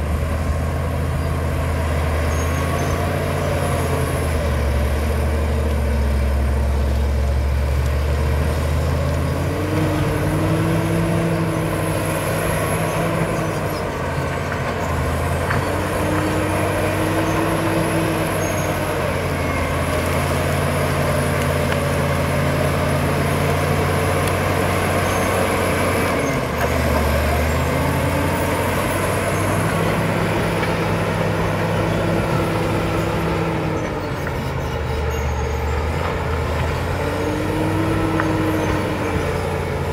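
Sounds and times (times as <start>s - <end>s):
bulldozer diesel engine working: 0.0s - 39.9s.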